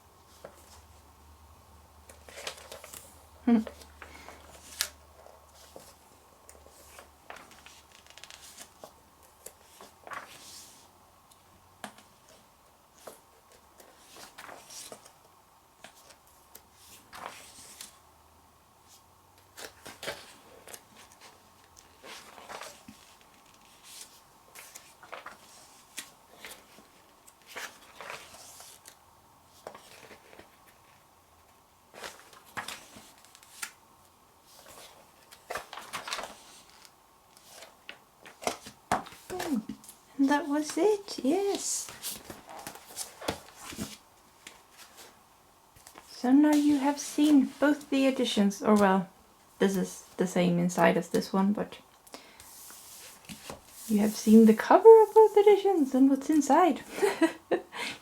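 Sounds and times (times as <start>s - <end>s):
magazine pages turning: 2.1s - 3.1s, 6.6s - 10.8s, 13.8s - 15.2s, 15.8s - 18.0s, 19.5s - 30.8s, 31.9s - 33.8s, 34.5s - 40.0s, 40.6s - 45.2s, 52.4s - 55.9s.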